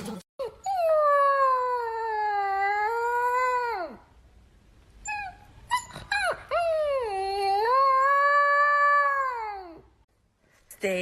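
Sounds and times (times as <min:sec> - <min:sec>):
dog yipping and whimpering: 0:00.4 - 0:04.0, 0:05.0 - 0:09.6
dog howling: 0:05.1 - 0:09.8.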